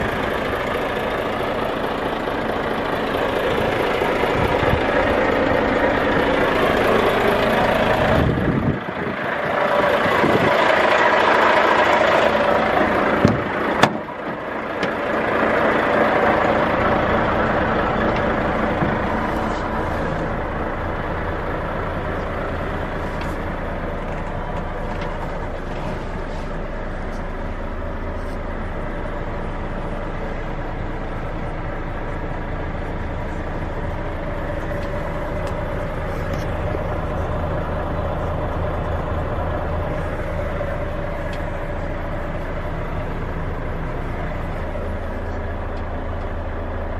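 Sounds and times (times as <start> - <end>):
diesel engine idling: 0.0 - 46.9.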